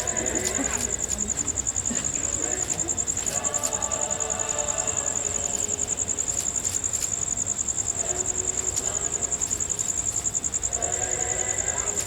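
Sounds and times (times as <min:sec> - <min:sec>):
faint voices: 0:00.0 - 0:07.2
crickets chirring: 0:00.0 - 0:12.0.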